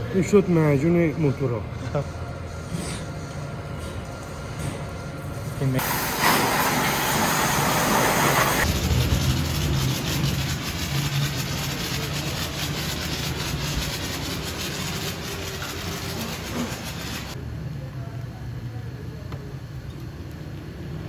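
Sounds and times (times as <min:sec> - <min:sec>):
loud hiss: 0:05.8 - 0:09.6.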